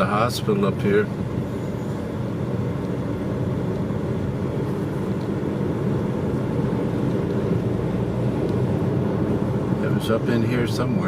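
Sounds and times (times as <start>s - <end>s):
car driving heard from inside: 0.0s - 11.0s.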